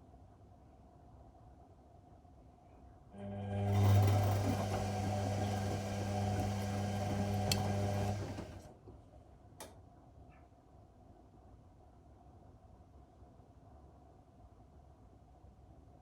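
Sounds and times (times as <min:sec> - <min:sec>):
washing machine motor humming: 0:03.2 - 0:08.8
water and laundry sloshing: 0:03.8 - 0:08.7.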